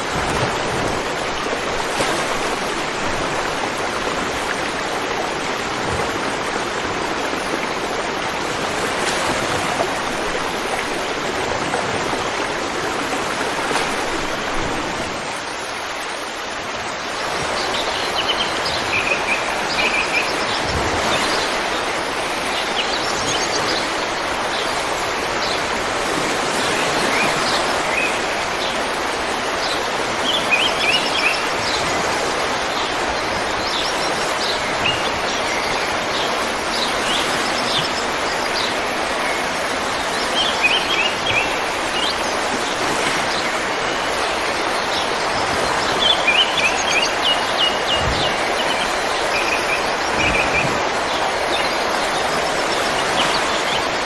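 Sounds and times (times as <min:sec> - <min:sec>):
river water rushing: 0:00.0 - 0:54.0
birds chirping: 0:26.8 - 0:54.0.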